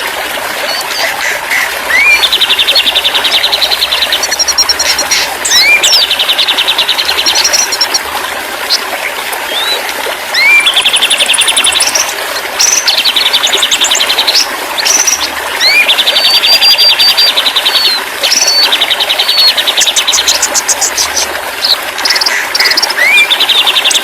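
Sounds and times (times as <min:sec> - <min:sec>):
bird singing: 0:01.9 - 0:07.9, 0:10.4 - 0:21.2, 0:22.0 - 0:24.0.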